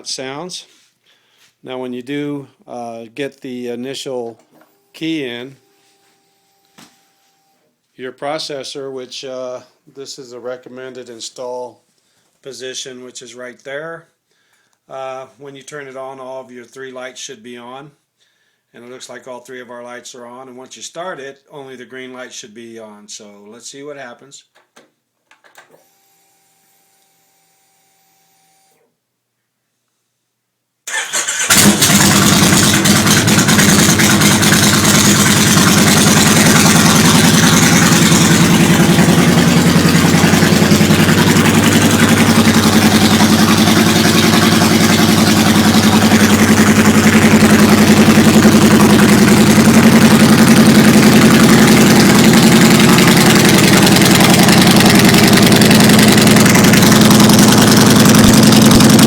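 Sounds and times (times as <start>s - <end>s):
motorcycle engine starting and idling: 30.9s - 59.0s.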